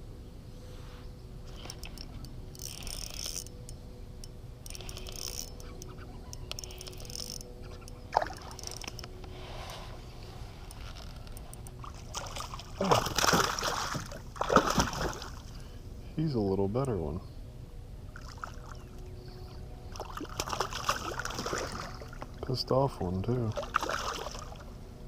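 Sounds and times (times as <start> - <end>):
spinning reel cranking: 1.7 - 3.5, 4.7 - 5.7, 6.5 - 7.5
water splashing loudly: 12.1 - 15.4.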